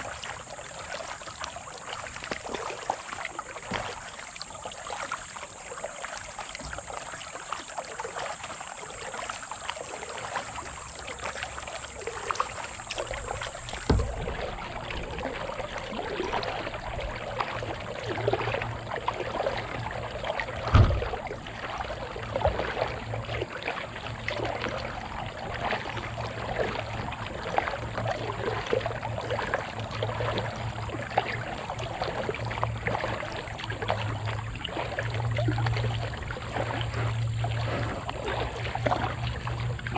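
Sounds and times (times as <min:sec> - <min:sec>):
paddle strokes splashing in water: 0:00.0 - 0:39.9
dull knocks: 0:13.2 - 0:14.6, 0:20.7 - 0:21.1.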